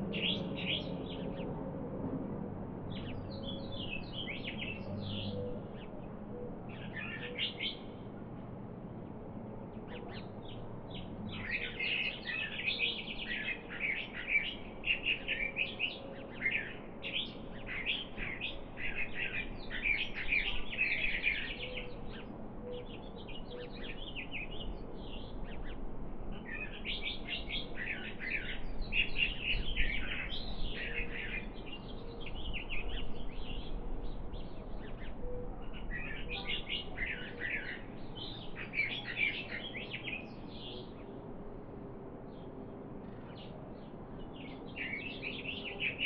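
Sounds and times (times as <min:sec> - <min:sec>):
songbirds chirping and trilling: 0:00.0 - 0:46.0.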